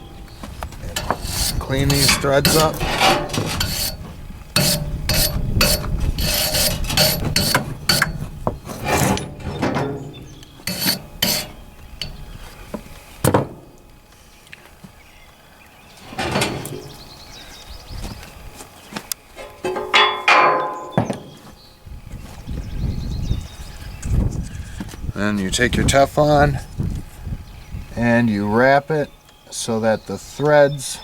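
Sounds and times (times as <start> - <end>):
wire brush scrubbing metal: 0.0 - 12.4, 16.0 - 17.1
metal clunks: 0.0 - 13.8, 16.0 - 17.2, 19.4 - 21.5.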